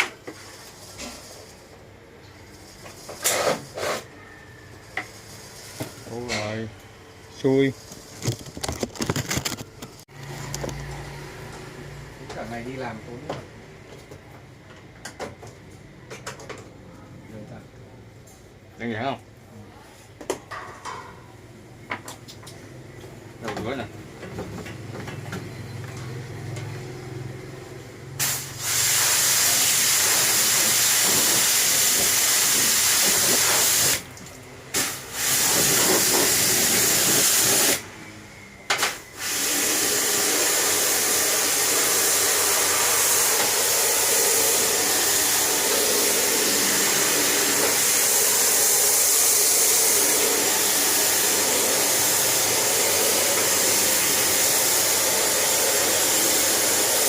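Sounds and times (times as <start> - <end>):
pressure washer water jet hissing: 28.2 - 34.1, 34.7 - 37.9, 38.8 - 57.0.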